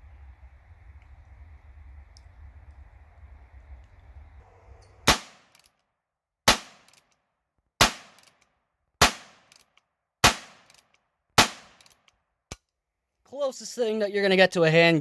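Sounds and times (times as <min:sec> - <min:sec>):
low rumble: 0:00.0 - 0:05.2
gunshots cracking: 0:05.0 - 0:05.6, 0:06.5 - 0:07.0, 0:07.8 - 0:08.3, 0:09.0 - 0:09.5, 0:10.2 - 0:10.8, 0:11.4 - 0:11.9.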